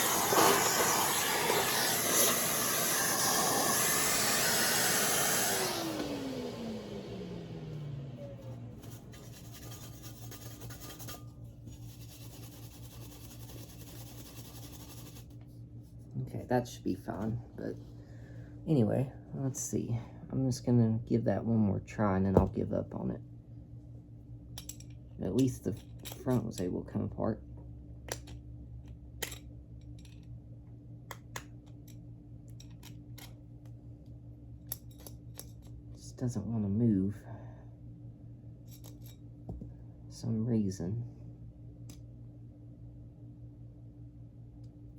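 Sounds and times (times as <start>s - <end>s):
vacuum cleaner motor winding down: 0.0s - 9.5s
steady low hum: 0.0s - 44.9s
parts scratching and rubbing: 8.8s - 15.4s.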